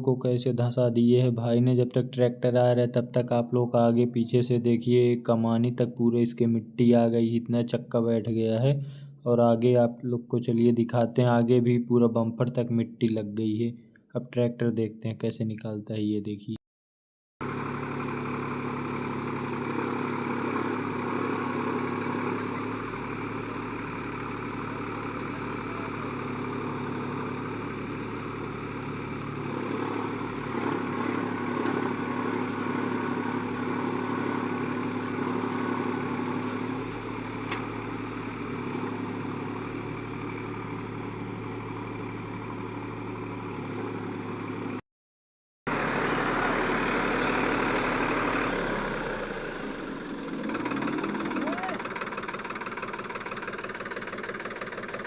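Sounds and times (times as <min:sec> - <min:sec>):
tractor diesel engine under load: 0:00.0 - 0:13.6, 0:17.4 - 0:44.8, 0:45.7 - 0:55.0.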